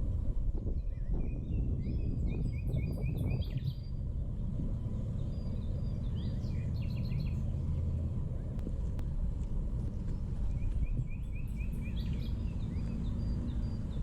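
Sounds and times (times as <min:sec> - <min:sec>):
low outdoor rumble: 0:00.0 - 0:14.0
small birds chirping: 0:00.8 - 0:04.0, 0:05.1 - 0:07.8, 0:09.8 - 0:14.0.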